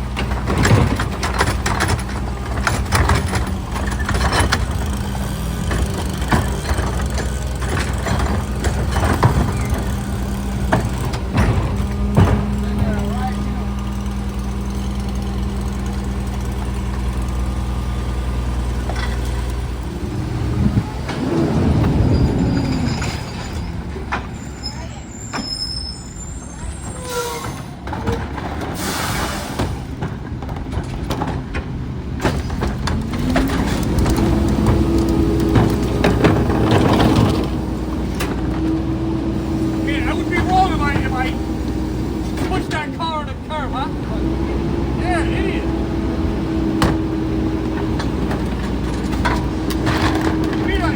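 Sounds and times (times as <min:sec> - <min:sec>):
diesel engine running: 0:00.0 - 0:50.9
sharp clanks and knocks: 0:00.1 - 0:17.7, 0:18.3 - 0:24.4, 0:29.6 - 0:38.8, 0:46.6 - 0:50.9.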